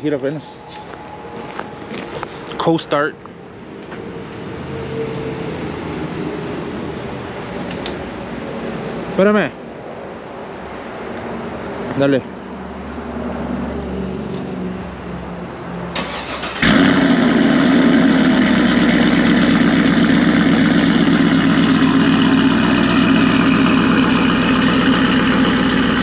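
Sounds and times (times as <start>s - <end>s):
car engine starting and idling: 15.9s - 26.0s.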